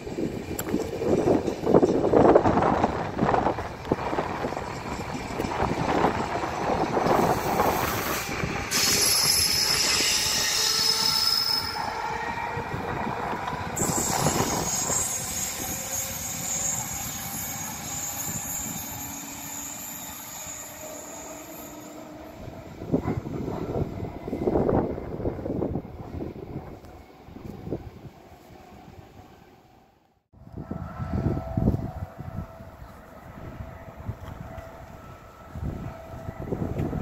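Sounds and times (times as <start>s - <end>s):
train rolling past: 0.0s - 37.0s
train wheels squealing: 4.0s - 24.8s.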